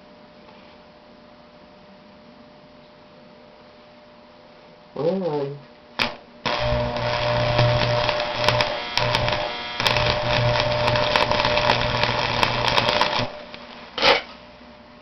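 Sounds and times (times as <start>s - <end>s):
electrical buzz: 6.0s - 14.3s
arc welder crackling: 6.0s - 14.6s.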